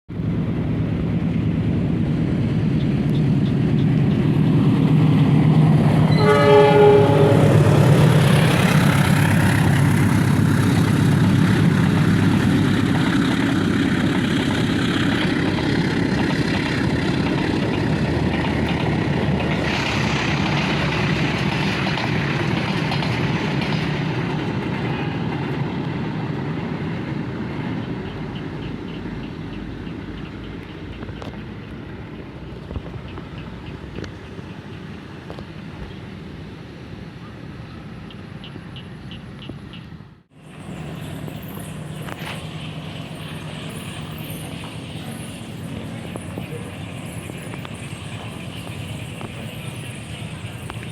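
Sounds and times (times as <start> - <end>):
locomotive engine running: 0.1 - 50.9
train horn: 6.1 - 8.5.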